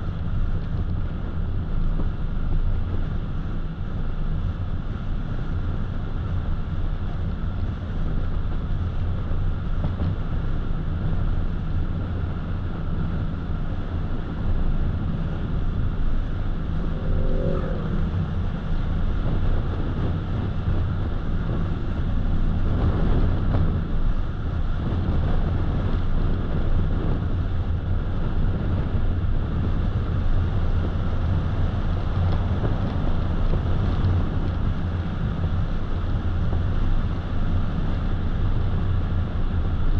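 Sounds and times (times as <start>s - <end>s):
air and road hiss: 14.8s - 19.7s.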